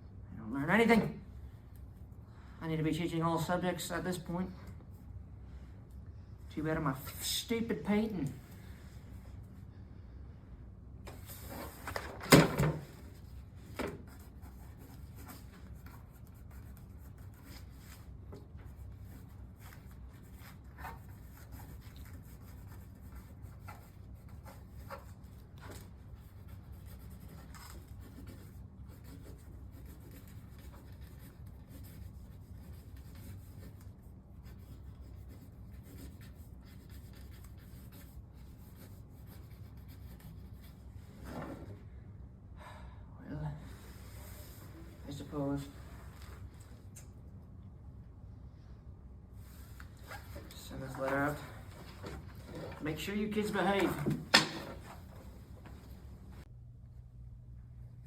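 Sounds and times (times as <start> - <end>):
pen scratching on paper: 18.7 - 40.7.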